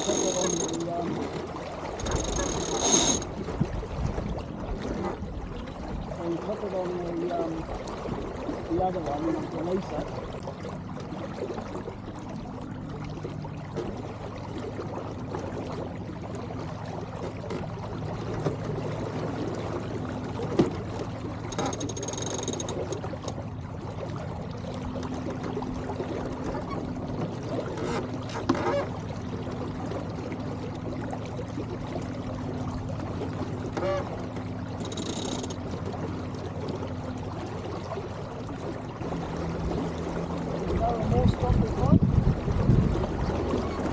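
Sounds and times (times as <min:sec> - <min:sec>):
high-pitched squeak: 0:00.0 - 0:00.8, 0:02.0 - 0:03.3
water gurgling along a hull: 0:00.0 - 0:43.9.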